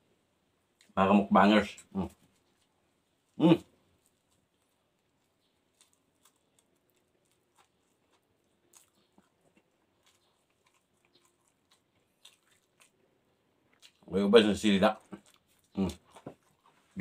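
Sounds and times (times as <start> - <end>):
chewing mouth clicks and smacks: 4.0 - 13.0, 13.6 - 14.1, 14.9 - 16.9.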